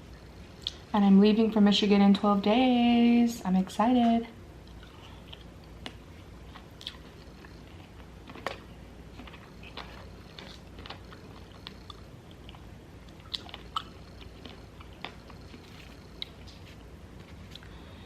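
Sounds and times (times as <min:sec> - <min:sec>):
person chewing food: 0:04.6 - 0:18.0
wet mouth clicks: 0:10.5 - 0:15.4.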